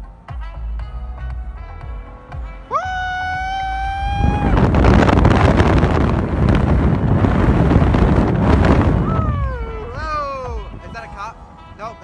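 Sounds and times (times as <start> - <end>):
wind buffeting microphone: 2.7 - 12.0.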